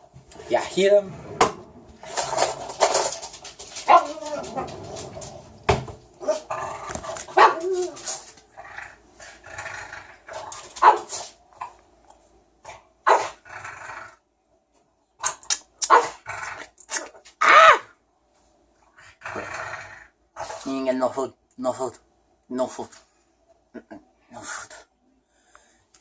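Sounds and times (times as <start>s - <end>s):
dog barking and yipping: 3.8s - 4.7s, 7.3s - 8.3s, 10.8s - 11.2s, 15.9s - 16.2s.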